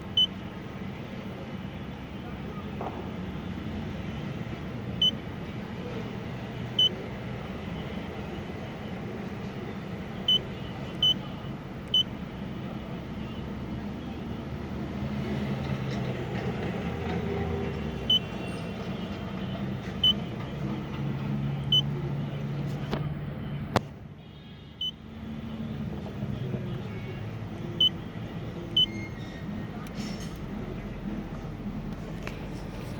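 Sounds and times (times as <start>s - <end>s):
short high beeps: 28.8s - 29.2s.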